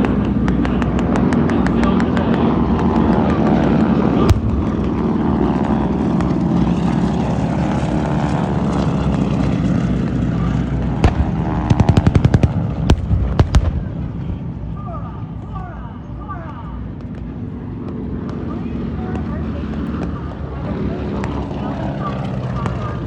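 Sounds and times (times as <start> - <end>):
rapid sharp pops: 0.0 - 3.4, 11.0 - 13.8
low-flying aircraft engine roar: 0.0 - 23.0
sharp crack: 11.0 - 14.2.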